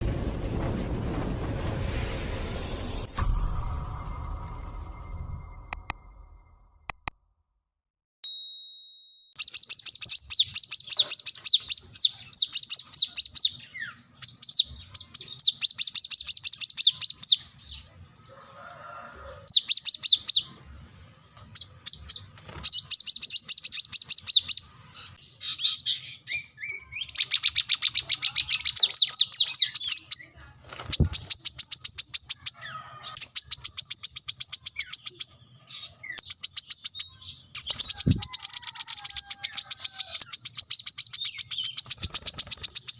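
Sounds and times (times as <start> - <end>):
sunbird chattering song: 9.4 - 17.9, 19.5 - 20.6, 21.5 - 42.9.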